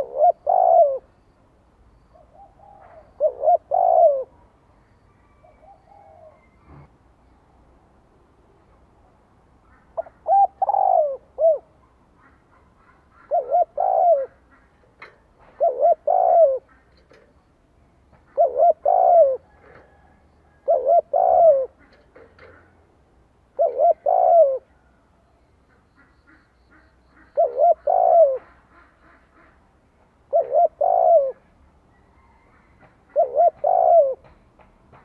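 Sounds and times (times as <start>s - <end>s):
dove cooing: 0.0s - 1.2s, 2.1s - 7.0s, 9.8s - 17.2s, 18.2s - 22.7s, 23.5s - 24.9s, 27.2s - 29.2s, 30.3s - 34.4s.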